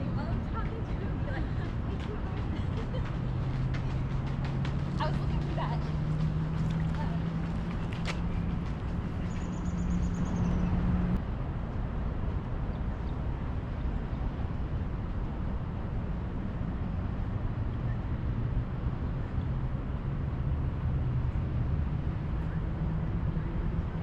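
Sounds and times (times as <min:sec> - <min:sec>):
engine humming: 0:00.0 - 0:11.2.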